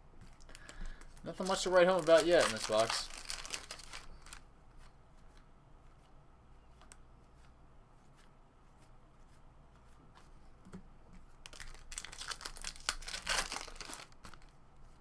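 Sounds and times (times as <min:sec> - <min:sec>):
foil wrapper crackling: 0:00.4 - 0:04.4, 0:11.4 - 0:14.5.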